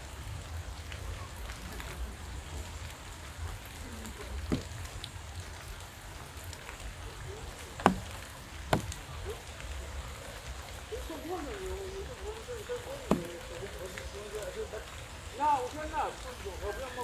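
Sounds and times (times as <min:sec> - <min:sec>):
steady rain falling: 0:00.0 - 0:17.0
sharp drip-like taps: 0:02.9 - 0:15.0.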